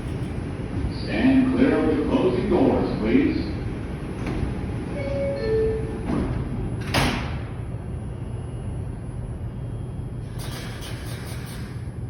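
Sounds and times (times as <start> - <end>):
train rumble: 0.0 - 12.0
sliding doors shutting: 4.1 - 7.4
two-tone door-closing chime: 5.0 - 5.9.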